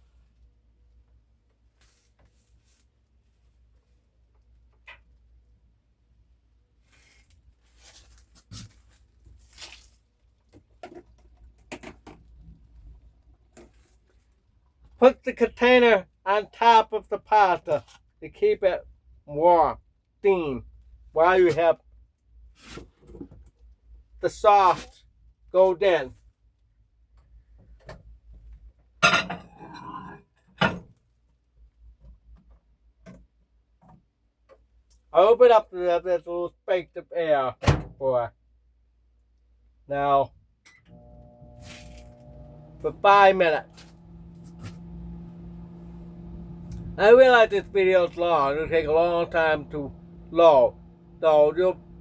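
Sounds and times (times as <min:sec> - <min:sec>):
dishes clattering on a counter: 0:29.0 - 0:30.8.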